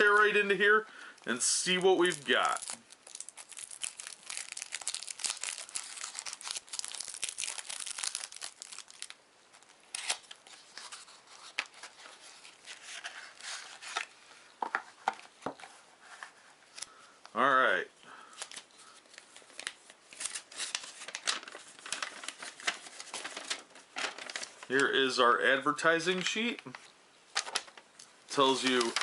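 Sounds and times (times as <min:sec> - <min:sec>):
packaging tearing and crinkling: 0:01.7 - 0:14.1, 0:18.4 - 0:24.7, 0:28.4 - 0:29.0.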